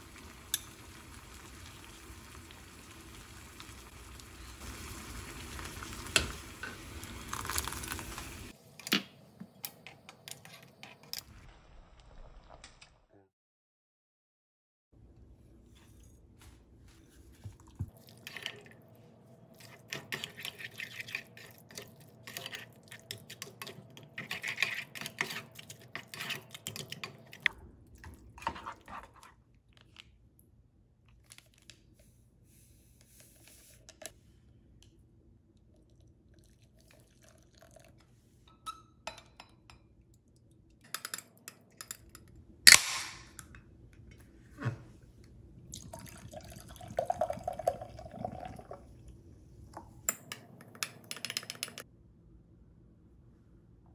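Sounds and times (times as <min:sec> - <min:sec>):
spatula scraping saucepan: 0:19.6 - 0:27.5.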